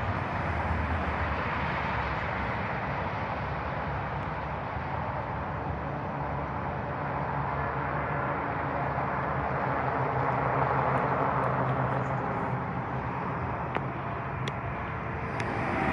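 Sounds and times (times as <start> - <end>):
low hum: 14.0 - 15.9
train wheels rumbling: 15.0 - 15.9.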